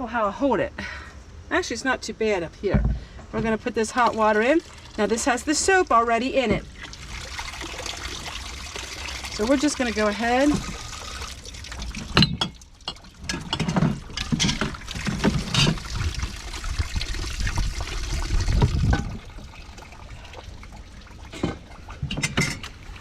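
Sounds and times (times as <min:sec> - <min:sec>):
water poured into basin: 0:04.0 - 0:05.8, 0:06.7 - 0:13.4, 0:14.0 - 0:22.0.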